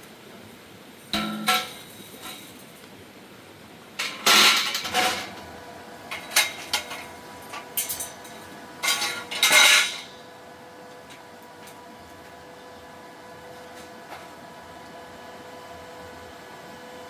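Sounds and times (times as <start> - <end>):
metal pieces clattering: 6.1 - 10.1.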